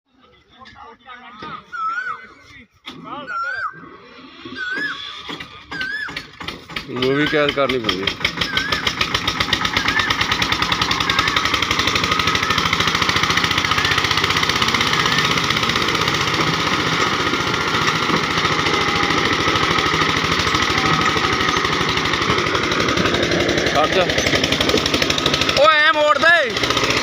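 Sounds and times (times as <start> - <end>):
tractor diesel engine running: 5.0 - 27.0.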